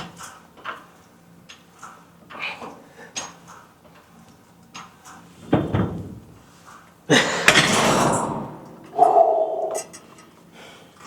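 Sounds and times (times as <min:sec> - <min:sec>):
gym weights thudding: 0:07.4 - 0:09.8
weights clattering: 0:07.4 - 0:10.0.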